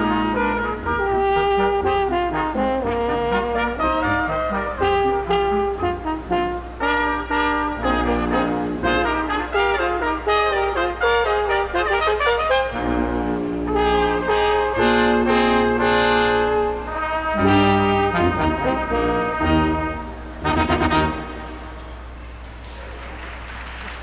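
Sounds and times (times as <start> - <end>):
brass ensemble playing: 0.0 - 22.2.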